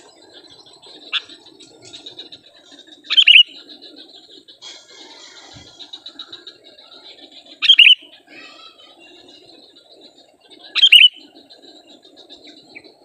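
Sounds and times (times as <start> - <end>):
faint high chirping: 0.0 - 13.0.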